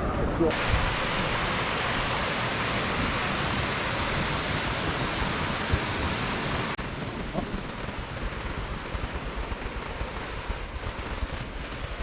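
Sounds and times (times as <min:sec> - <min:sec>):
stream water rushing: 0:00.5 - 0:06.8.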